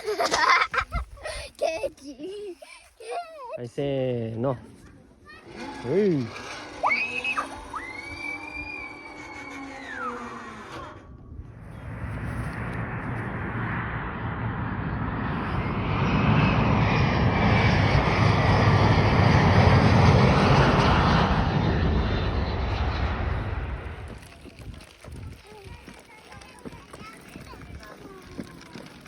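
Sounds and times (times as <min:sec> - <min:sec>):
airplane engines rushing: 0:04.3 - 0:29.0.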